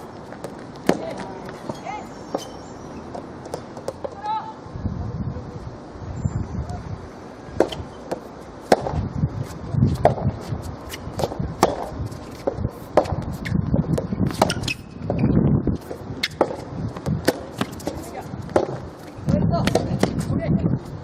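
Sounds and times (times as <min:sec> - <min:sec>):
rackets striking tennis ball: 0:00.4 - 0:04.2, 0:07.6 - 0:09.0, 0:10.0 - 0:20.3
ball bouncing on court: 0:16.2 - 0:20.2.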